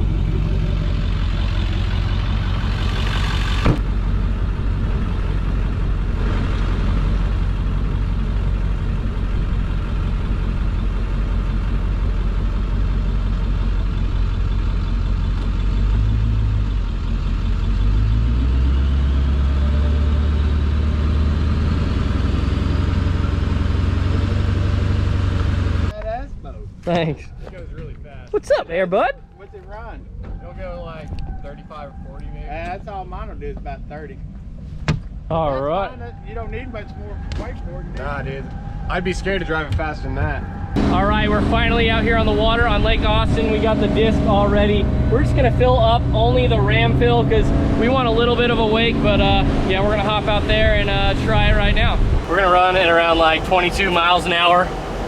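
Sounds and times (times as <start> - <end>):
vehicle engine rumbling: 0.0 - 55.0
faint rising whine: 35.6 - 55.0.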